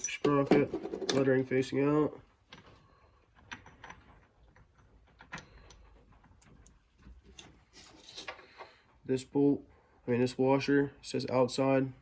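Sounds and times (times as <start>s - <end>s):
metal parts clicking and tapping: 0.0s - 1.5s, 2.4s - 8.4s.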